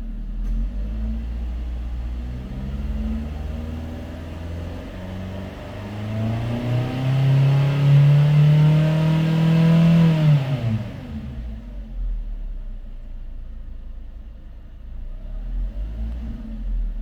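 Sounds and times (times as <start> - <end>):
car engine revving: 0.8 - 11.6.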